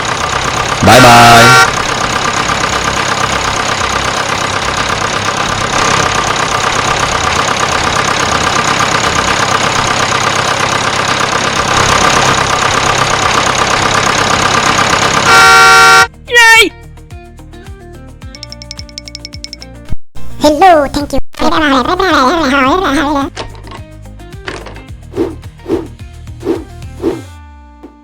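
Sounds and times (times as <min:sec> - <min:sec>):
small motor rattling: 0:00.0 - 0:15.6
loud horn: 0:00.8 - 0:01.9, 0:15.2 - 0:16.2.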